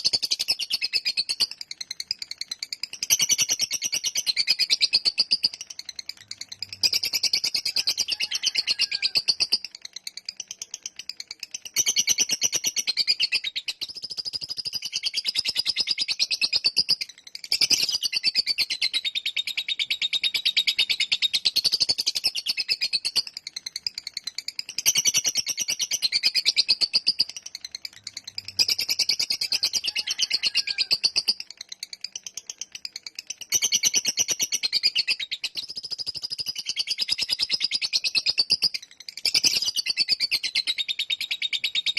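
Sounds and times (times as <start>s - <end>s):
bird shrill chattering: 6.4s - 9.6s, 28.1s - 31.4s.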